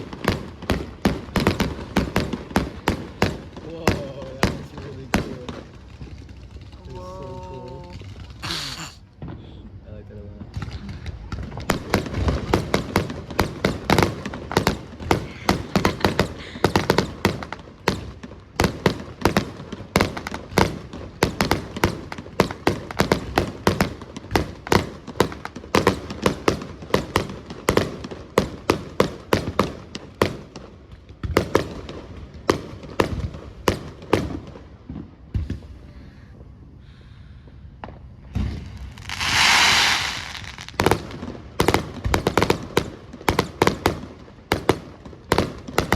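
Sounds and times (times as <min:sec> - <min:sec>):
fireworks bangs and crackles: 0:00.0 - 0:45.9
loud hissing firework burst: 0:14.6 - 0:17.4, 0:35.3 - 0:41.1.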